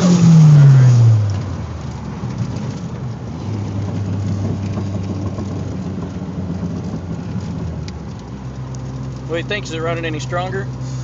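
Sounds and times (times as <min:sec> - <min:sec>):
car engine drone from inside: 0:00.0 - 0:11.0
road noise: 0:00.0 - 0:11.0.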